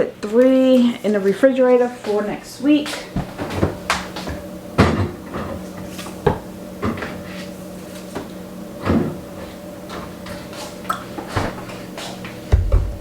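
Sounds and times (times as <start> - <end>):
low steady hum: 0.0 - 13.0
refrigerator door opening: 8.8 - 13.0
bottles knocking on fridge shelves: 12.5 - 13.0.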